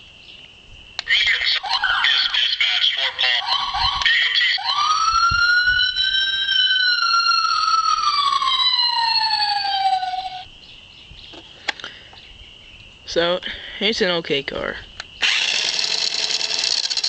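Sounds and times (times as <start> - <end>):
faint steady high tone: 1.1 - 10.5
electronic police siren wail: 1.2 - 10.5.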